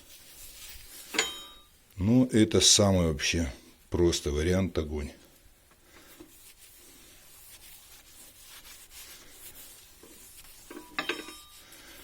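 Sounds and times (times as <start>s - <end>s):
cloth wiping glass: 6.1s - 12.0s.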